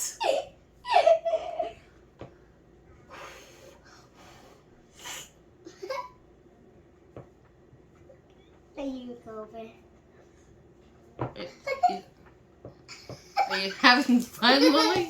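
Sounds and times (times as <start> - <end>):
breathy hissing exhalations: 3.0 - 5.4.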